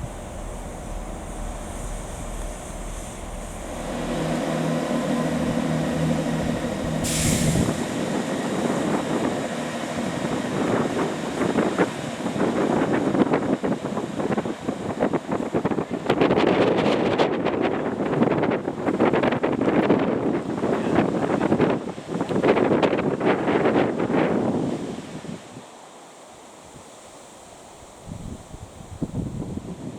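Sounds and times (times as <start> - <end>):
short hiss burst: 0.0 - 7.9
train engine hum: 0.0 - 29.9.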